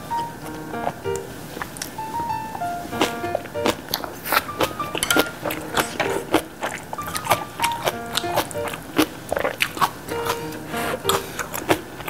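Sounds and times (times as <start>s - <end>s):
crunchy chewing: 2.9s - 12.0s
plucked ukulele-like music: 4.6s - 6.4s.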